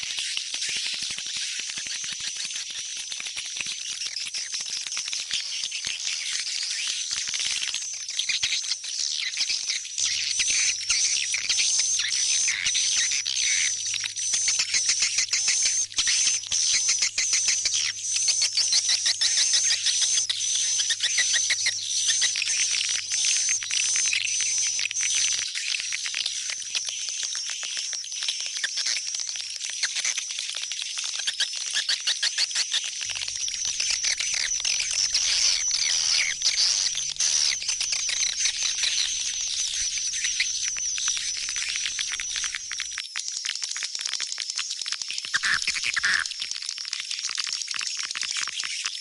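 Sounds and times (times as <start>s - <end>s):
high twittering bird chirps: 8.1s - 26.5s, 31.8s - 42.8s
swiftlet calls: 33.1s - 42.8s.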